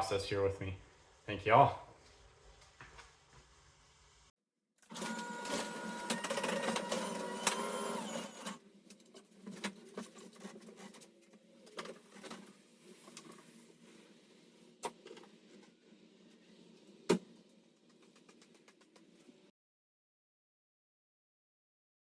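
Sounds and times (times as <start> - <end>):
small electric motor whirring: 4.9 - 8.6.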